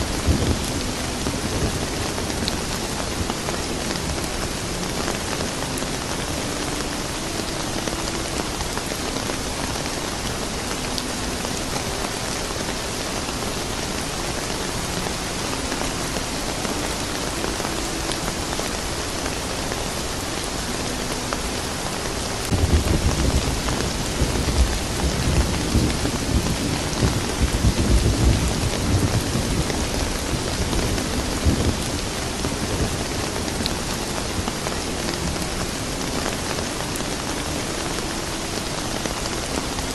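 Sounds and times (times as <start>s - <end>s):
thunder rumbling: 0.0s - 5.2s, 22.4s - 35.6s
steady rain falling: 0.0s - 39.9s.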